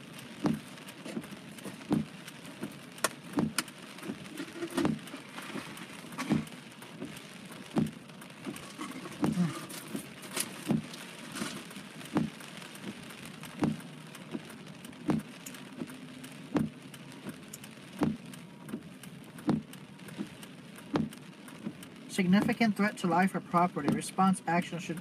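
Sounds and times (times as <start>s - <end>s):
heavy rain on a car: 0.0s - 25.0s
windshield wipers thumping: 0.0s - 25.0s.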